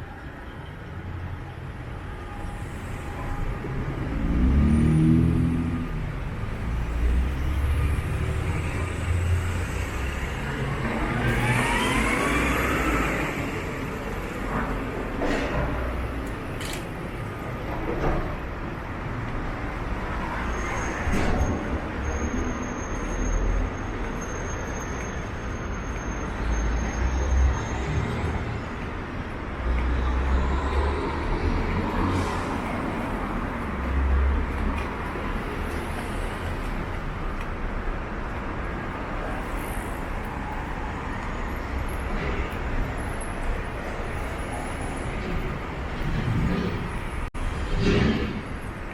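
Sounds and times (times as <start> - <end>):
hum of passing cars and buses: 0.0 - 48.9
low rumble of traffic: 0.0 - 48.9
vehicle accelerating whine: 7.4 - 14.1.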